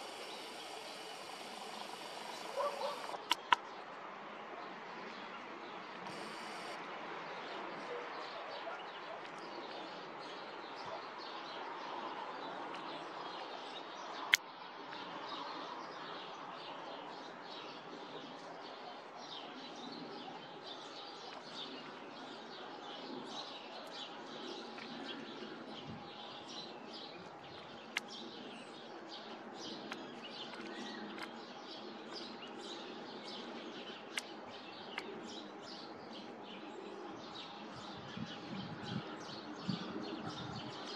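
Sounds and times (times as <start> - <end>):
steady background hiss: 0.0 - 3.3, 6.1 - 6.8
small birds chirping: 0.0 - 3.7
sharp clicks: 0.1 - 3.6.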